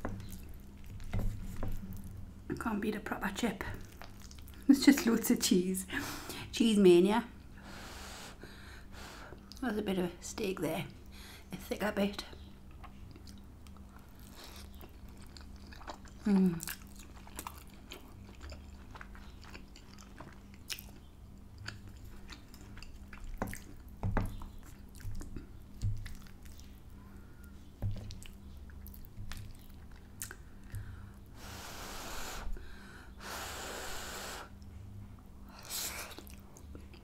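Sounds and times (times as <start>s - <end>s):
close chewing and mouth sounds: 0.0s - 2.8s, 3.6s - 5.3s, 12.3s - 31.3s, 34.5s - 37.0s
breathy puffs blowing: 30.9s - 34.6s.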